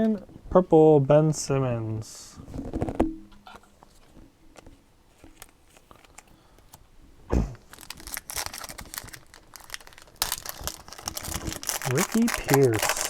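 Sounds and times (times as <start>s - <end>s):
foil wrapper crinkling and tearing: 5.2s - 6.3s, 7.6s - 13.0s.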